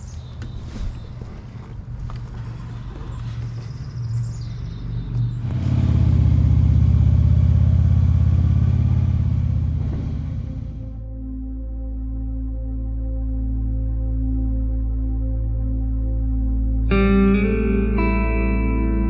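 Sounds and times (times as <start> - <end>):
motorcycle engine running: 5.2 - 11.0.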